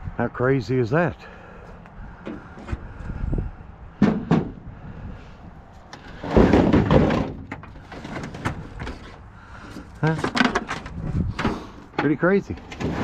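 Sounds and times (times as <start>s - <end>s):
sharp knocks: 4.0s - 4.6s
objects clattering: 5.9s - 13.0s.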